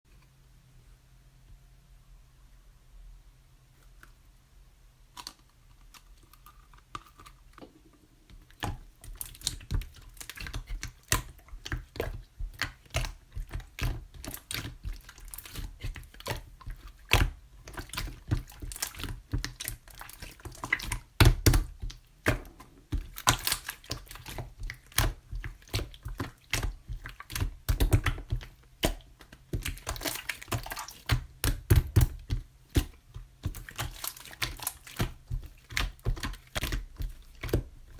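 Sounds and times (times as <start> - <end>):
slime clicking and popping: 8.5 - 37.7.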